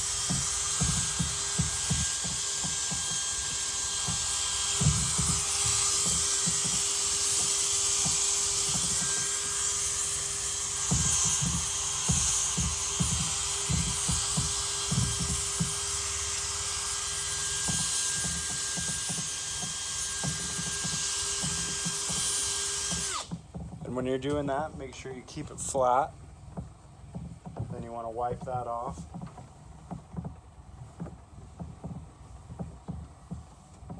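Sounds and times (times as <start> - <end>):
power drill whine: 0.0 - 23.4
polishing pad knocks: 0.0 - 33.9.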